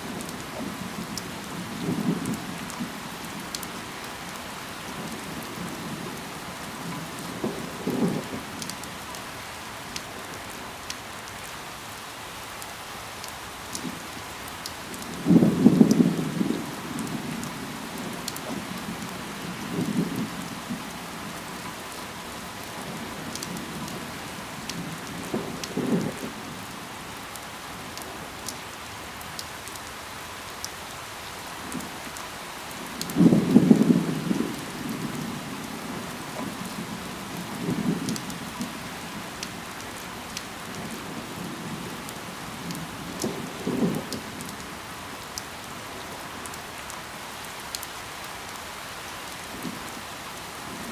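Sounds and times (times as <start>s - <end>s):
steady rain: 0.0s - 50.9s
raindrop ticks: 0.2s - 9.3s, 9.9s - 11.5s, 12.6s - 21.8s, 22.6s - 26.4s, 27.3s - 29.9s, 31.6s - 45.5s, 46.4s - 48.7s.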